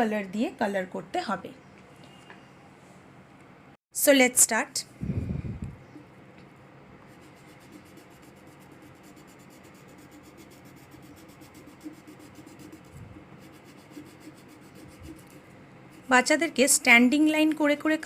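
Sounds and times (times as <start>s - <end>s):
colouring tool scratching on paper: 7.0s - 18.0s.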